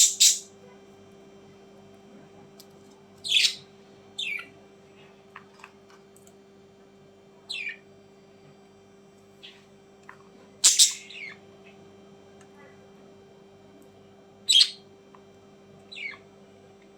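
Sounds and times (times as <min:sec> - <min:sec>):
bird squawks falling in pitch: 0:10.6 - 0:11.4.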